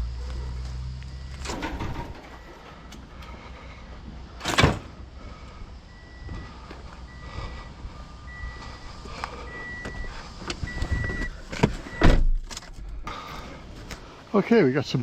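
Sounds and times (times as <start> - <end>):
low engine rumble: 0.0 - 14.4
vehicle warning beeper: 0.1 - 3.5, 5.2 - 12.2.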